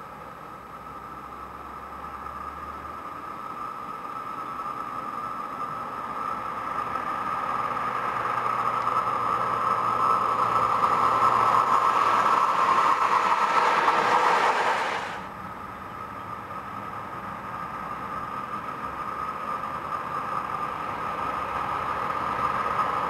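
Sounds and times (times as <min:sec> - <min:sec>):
high-pitched whine: 0:00.0 - 0:23.0
train passing at speed: 0:00.0 - 0:23.0.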